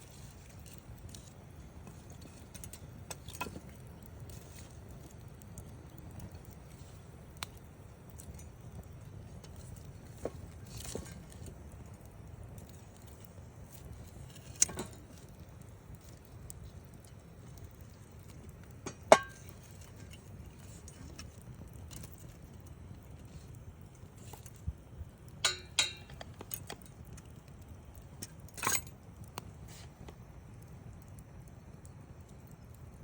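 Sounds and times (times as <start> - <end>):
campfire crackling and popping: 0.0 - 33.0
fire low rumble: 0.0 - 33.0.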